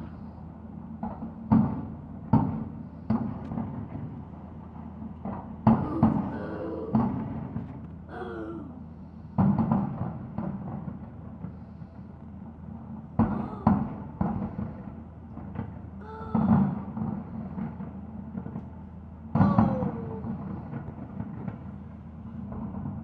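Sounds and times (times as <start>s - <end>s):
fireworks booming: 13.2s - 18.6s, 19.3s - 21.8s.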